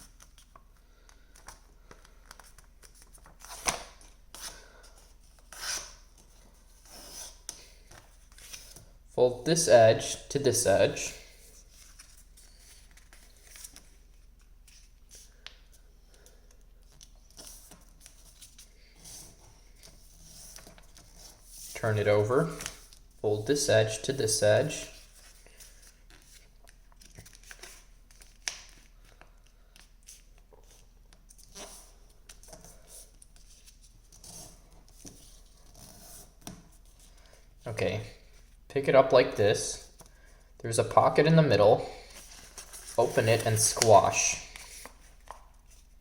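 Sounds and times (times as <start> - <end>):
paper rustling and crinkling: 11.2 - 23.1, 24.8 - 37.2, 42.1 - 46.0
paper crackles: 42.1 - 45.9.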